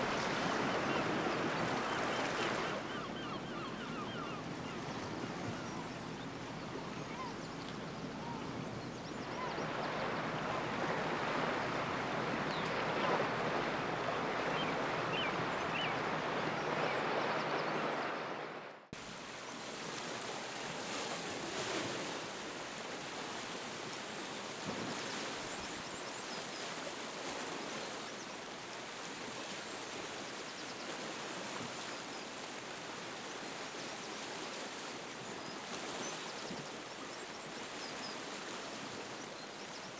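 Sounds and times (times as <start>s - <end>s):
sea surf washing: 0.0s - 2.8s, 9.3s - 23.1s
quiet wash of water: 0.0s - 39.9s.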